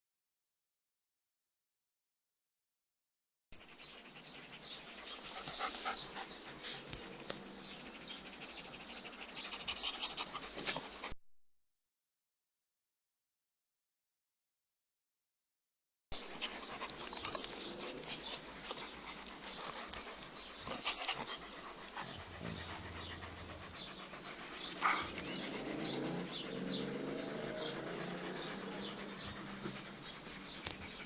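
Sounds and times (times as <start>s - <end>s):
dog making sounds: 3.6s - 11.2s, 16.2s - 31.0s.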